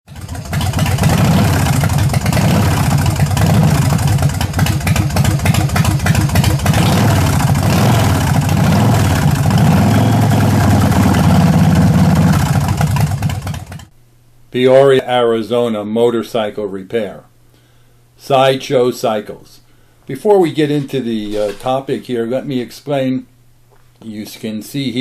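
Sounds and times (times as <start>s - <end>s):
motorcycle engine revving: 0.1s - 13.9s.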